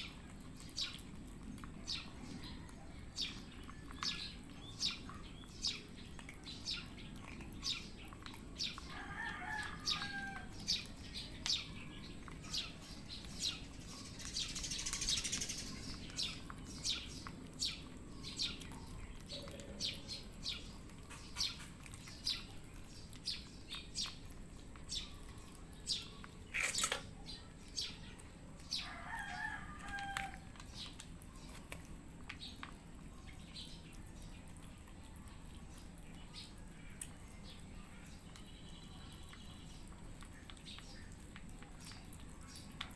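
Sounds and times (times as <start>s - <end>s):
cats crunching dry kibble: 0.2s - 9.8s, 15.7s - 37.4s
sharp click: 26.5s - 27.1s.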